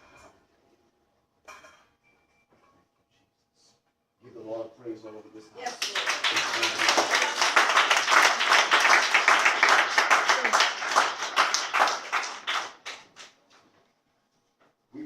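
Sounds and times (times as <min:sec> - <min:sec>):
congregation clapping: 0:05.6 - 0:13.4.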